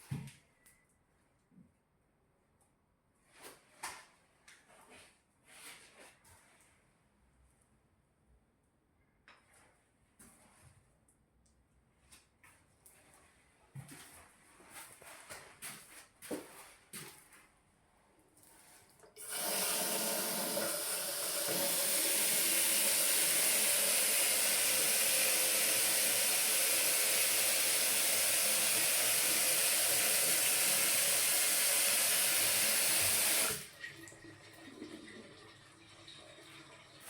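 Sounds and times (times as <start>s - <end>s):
water running from tap: 19.2s - 37.0s.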